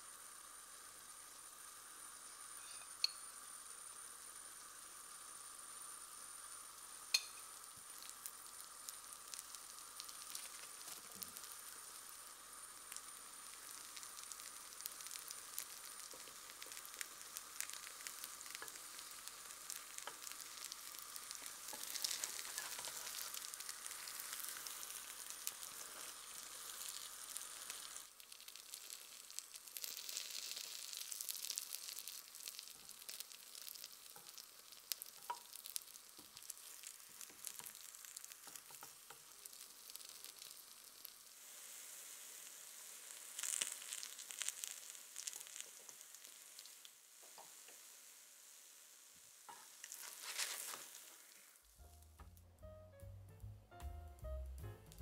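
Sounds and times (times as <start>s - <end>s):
batter sizzling in oil: 0.0s - 53.0s.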